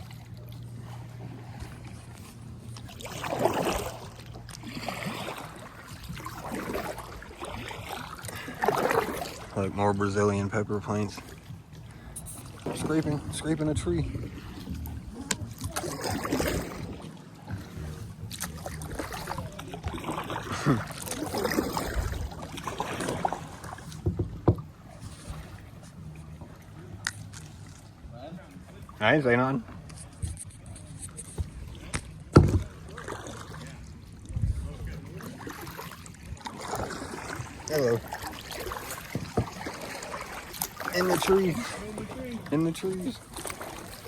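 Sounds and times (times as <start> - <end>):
paddle splashing in water: 0.0 - 44.0
knocks against kayak hull: 23.9 - 24.7, 31.4 - 32.7.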